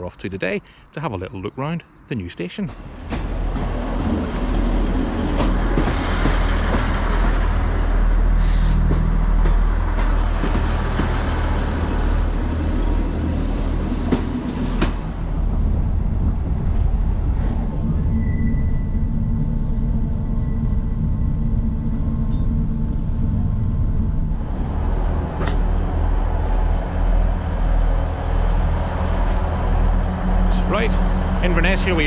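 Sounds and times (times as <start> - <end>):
train rumbling on tracks: 1.8 - 32.0.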